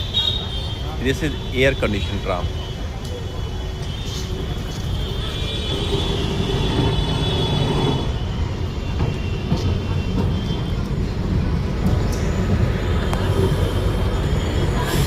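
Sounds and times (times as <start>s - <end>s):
tram rumbling on rails: 0.0s - 15.0s.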